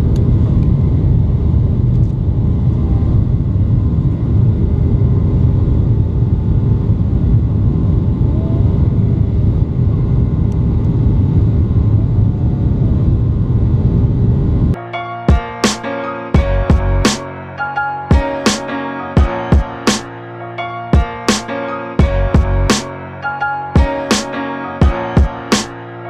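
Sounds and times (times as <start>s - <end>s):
airplane cabin rumble: 0.0s - 14.8s
rushing air and rolling noise: 0.0s - 26.0s.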